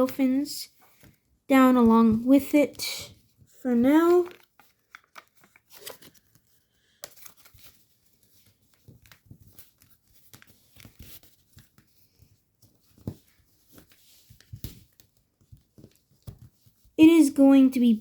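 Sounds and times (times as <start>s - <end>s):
paper rustling and crinkling: 3.1s - 17.0s.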